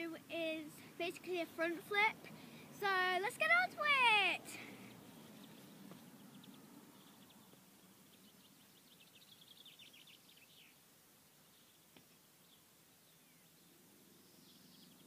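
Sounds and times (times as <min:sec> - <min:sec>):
faint bird chirping: 0:04.6 - 0:15.0.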